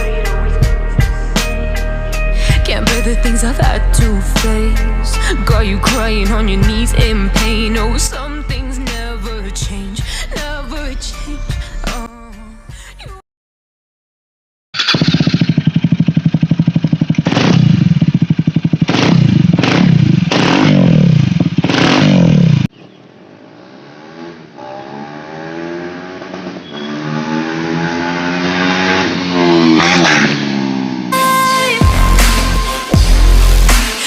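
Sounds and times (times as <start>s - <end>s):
motorcycle accelerating through gears: 14.8s - 31.2s
motorcycle engine revving: 14.8s - 34.0s.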